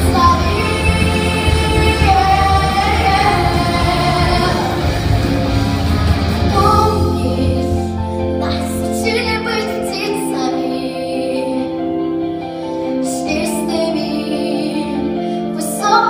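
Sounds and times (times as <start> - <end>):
children singing slow song: 0.0 - 5.2
instrumental accompaniment: 0.0 - 16.0.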